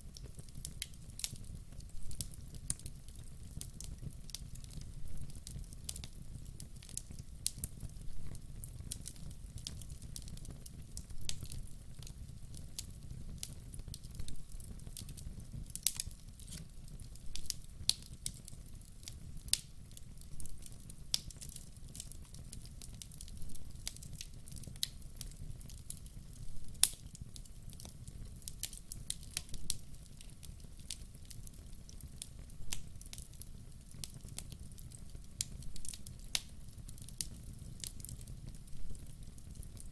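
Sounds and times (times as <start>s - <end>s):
logs crackling in wood fire: 0.0s - 39.9s
low fire rumble: 0.0s - 39.9s.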